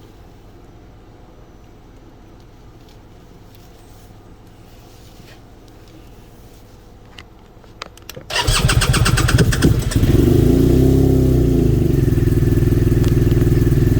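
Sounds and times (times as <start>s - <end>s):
car engine starting and idling: 8.2s - 13.9s.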